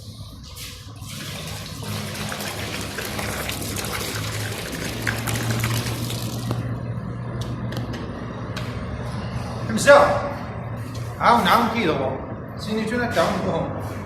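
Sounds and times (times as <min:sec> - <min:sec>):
water rushing out: 0:01.0 - 0:06.6.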